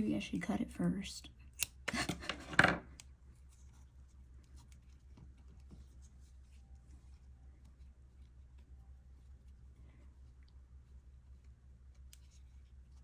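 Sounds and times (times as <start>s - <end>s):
steady low hum: 2.8s - 13.0s.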